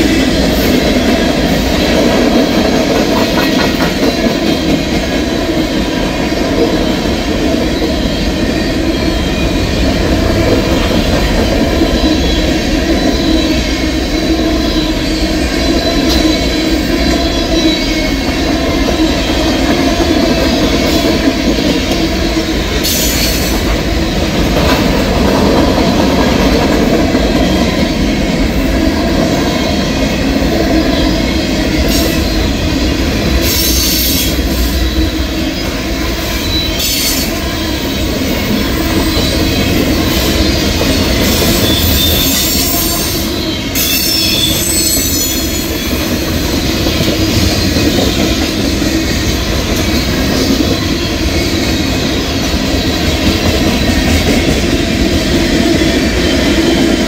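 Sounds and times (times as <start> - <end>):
freight train wheels rumbling: 0.0 - 57.0
high-pitched wheel squeals: 36.3 - 49.1.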